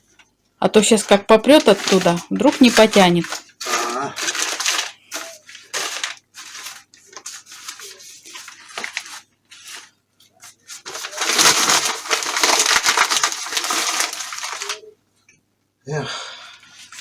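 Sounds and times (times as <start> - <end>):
newspaper crumpling: 1.0 - 14.9.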